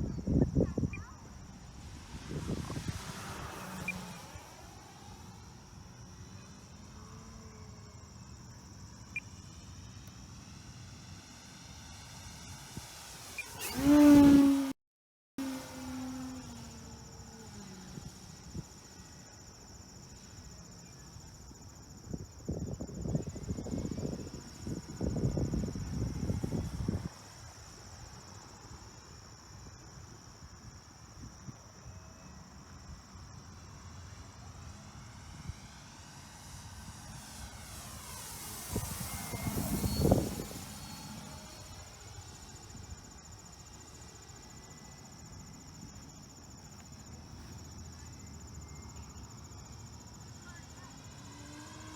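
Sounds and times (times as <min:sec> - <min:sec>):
gusty rumbling noise: 0:00.0 - 0:05.5, 0:35.1 - 0:43.0
high insect buzz: 0:00.0 - 0:14.8, 0:15.4 - 0:51.9
model plane motor whine: 0:01.3 - 0:14.8, 0:15.4 - 0:51.9.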